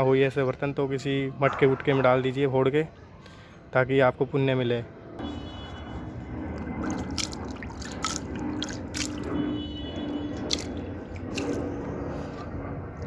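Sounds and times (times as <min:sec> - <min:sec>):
water splashing and dripping: 0:06.5 - 0:12.0.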